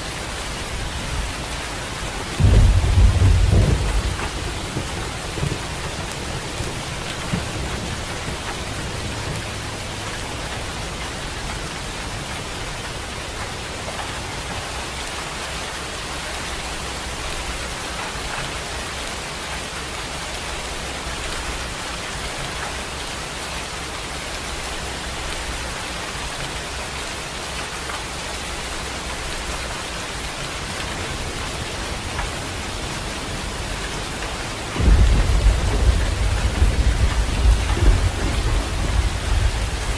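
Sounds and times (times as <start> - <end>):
heavy rain hissing: 0.0 - 39.9
thunder rumble: 0.2 - 15.2, 30.3 - 39.9.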